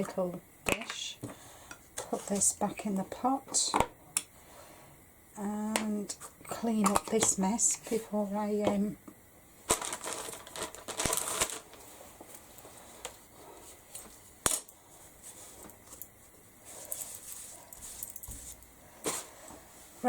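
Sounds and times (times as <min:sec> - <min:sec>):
small hard items clicking down: 0:09.7 - 0:11.7
rustling and crinkling: 0:09.7 - 0:20.0.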